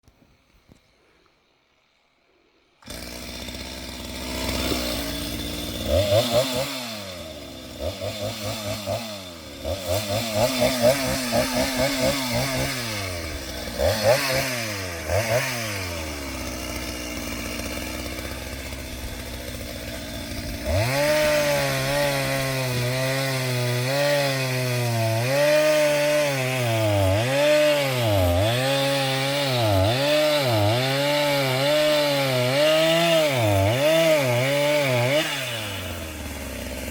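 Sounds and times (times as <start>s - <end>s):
chainsaw revving and cutting: 2.8s - 36.9s.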